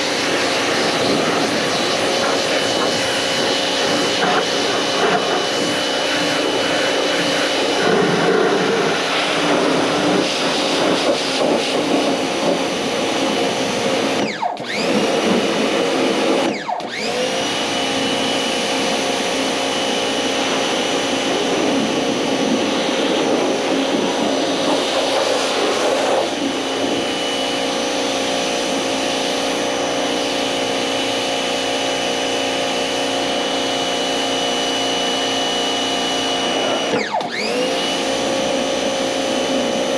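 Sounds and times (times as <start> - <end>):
spray hissing: 0.0 - 14.1
pressure washer motor whine: 0.0 - 39.9.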